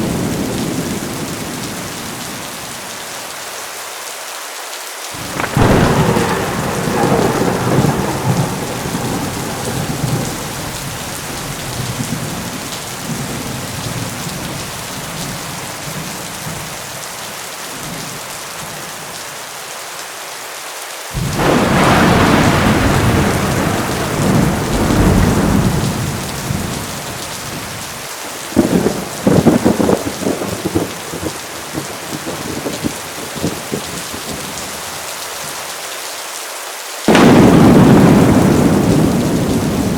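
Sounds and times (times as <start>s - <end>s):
rolling thunder: 0.0s - 2.8s, 5.2s - 16.8s, 21.2s - 34.8s, 37.1s - 39.9s
sharp crackling thunder: 0.0s - 2.9s, 5.2s - 17.0s, 21.2s - 35.0s, 37.1s - 39.9s
heavy rain falling: 0.0s - 39.9s.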